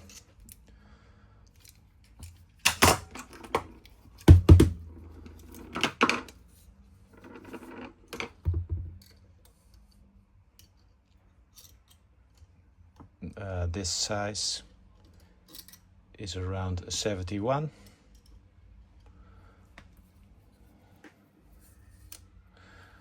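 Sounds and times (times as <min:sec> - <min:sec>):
metal parts clinking: 0:10.6 - 0:12.1, 0:15.4 - 0:15.9.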